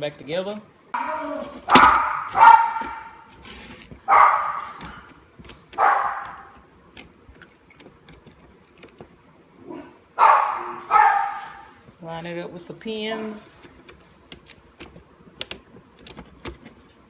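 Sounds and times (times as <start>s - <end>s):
dog barking: 1.0s - 3.3s, 4.1s - 5.0s, 5.8s - 6.6s, 9.7s - 11.8s.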